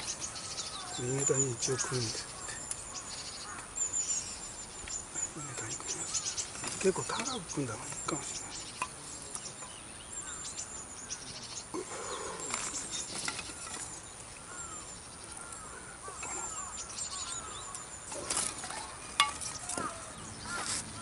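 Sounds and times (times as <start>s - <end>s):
birds calling: 0.0s - 21.0s
firewood sticks knocking together: 8.8s - 9.7s, 12.6s - 14.0s, 18.1s - 20.8s.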